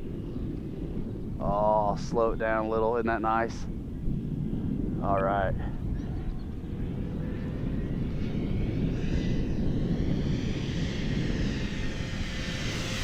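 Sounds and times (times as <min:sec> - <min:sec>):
wind noise on microphone: 0:00.0 - 0:13.0
model plane electric motor whine: 0:06.5 - 0:13.0.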